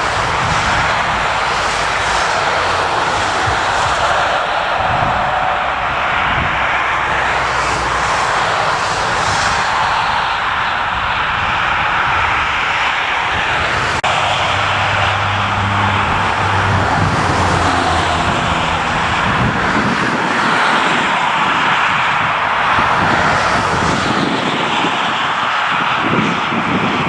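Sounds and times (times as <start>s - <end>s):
jet airliner engines running: 0.0s - 27.0s
low hum: 14.0s - 19.9s.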